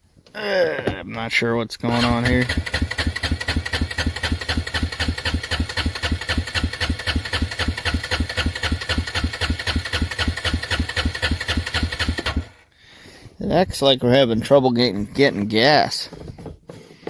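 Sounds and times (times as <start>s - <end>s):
engine idling with even chug: 1.9s - 12.6s.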